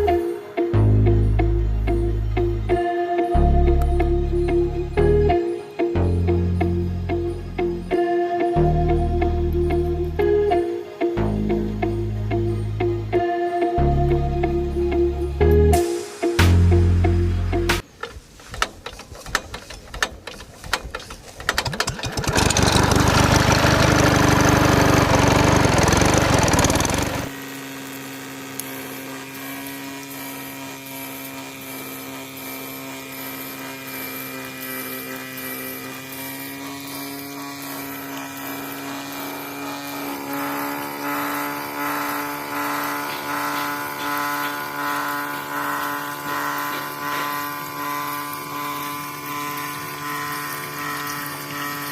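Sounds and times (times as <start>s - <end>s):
small water pump motor running: 18.8s - 51.9s.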